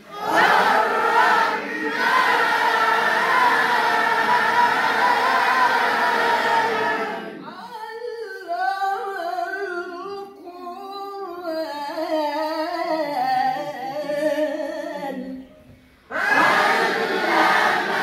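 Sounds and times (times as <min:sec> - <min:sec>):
group of voices: 0:00.0 - 0:07.6, 0:16.1 - 0:18.0.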